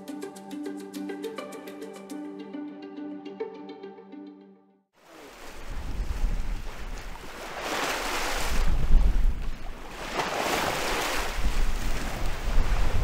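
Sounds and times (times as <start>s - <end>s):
bow wave splashing along hull: 5.0s - 13.0s
wind rumble on microphone: 5.5s - 7.4s, 8.2s - 10.0s, 11.1s - 13.0s.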